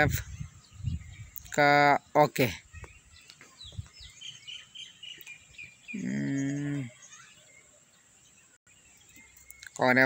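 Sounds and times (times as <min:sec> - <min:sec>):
small birds chirping: 0:00.0 - 0:10.0
man making hesitation sound: 0:05.9 - 0:07.0.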